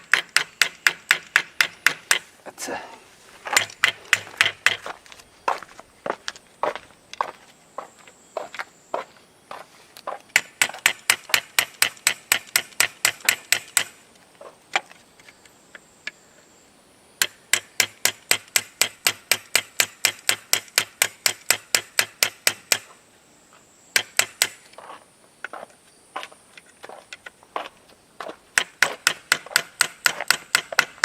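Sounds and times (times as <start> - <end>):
hammer tapping: 0.0 - 2.3, 3.5 - 4.9, 10.3 - 13.9.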